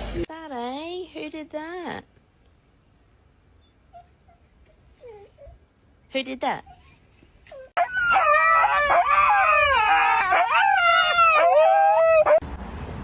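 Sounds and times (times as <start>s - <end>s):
dog howling: 7.6s - 12.4s.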